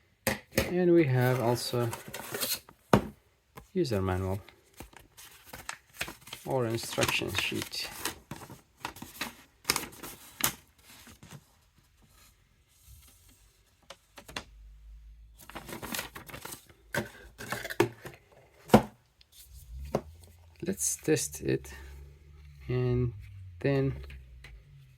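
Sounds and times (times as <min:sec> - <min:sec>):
paper rustling and crinkling: 0:01.1 - 0:02.8, 0:04.3 - 0:14.6, 0:15.4 - 0:18.2.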